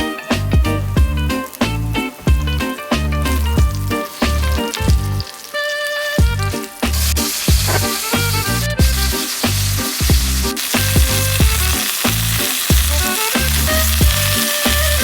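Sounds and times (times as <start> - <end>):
food sizzling in hot oil: 0.0 - 15.0
music with bass and drums: 0.0 - 15.0.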